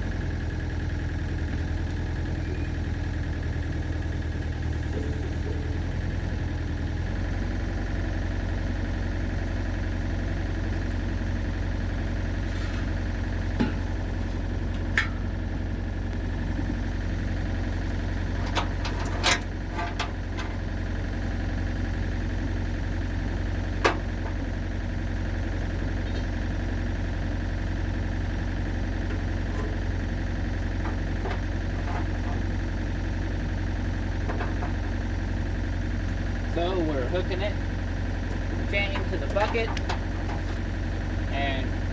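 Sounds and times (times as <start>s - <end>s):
excavator diesel engine idling: 0.0s - 41.9s.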